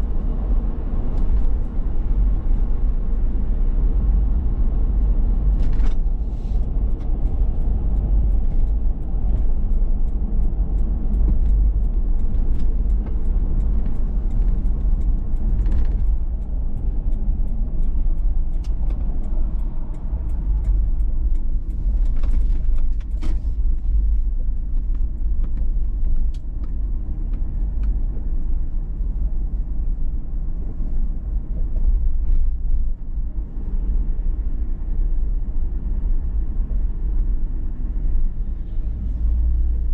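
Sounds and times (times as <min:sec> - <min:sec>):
engine and road noise rumble: 0:00.0 - 0:39.9
faint ticks and clicks: 0:06.6 - 0:28.1.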